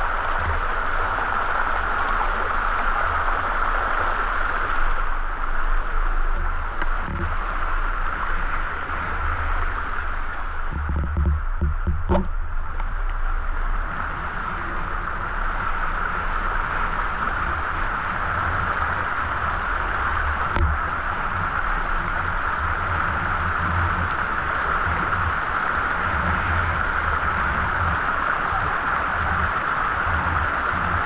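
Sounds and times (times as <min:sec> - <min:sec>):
low rumble: 0:00.0 - 0:31.0.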